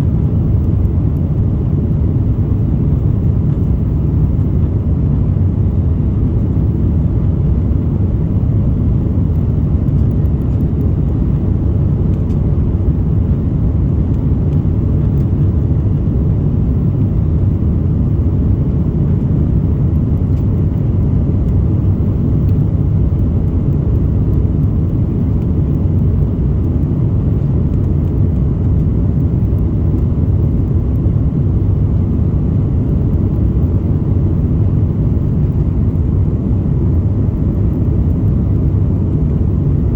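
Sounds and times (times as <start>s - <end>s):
jet engines rumbling in cabin: 0.0s - 39.9s.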